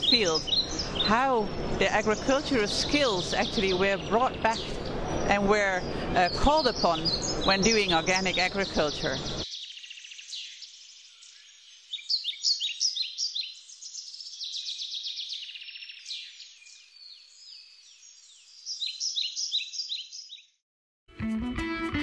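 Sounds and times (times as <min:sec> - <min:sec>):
birds chirping: 0:00.0 - 0:20.6
guitar music: 0:21.1 - 0:22.0.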